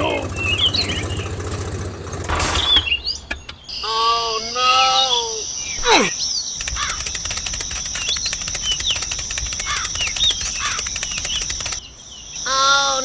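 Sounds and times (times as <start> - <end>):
fluttering clicks: 0.0 - 3.7, 6.6 - 11.8
birds chirping: 0.0 - 13.0
high insect drone: 3.7 - 13.0.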